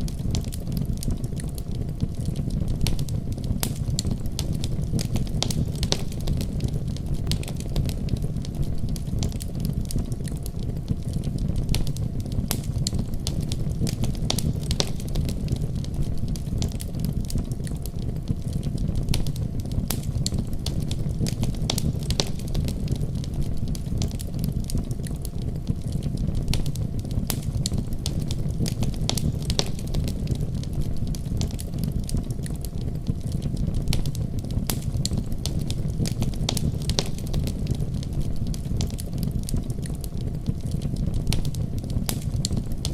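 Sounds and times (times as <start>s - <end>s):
fire crackling: 0.0s - 42.9s
sharp pops and snaps: 0.0s - 42.9s.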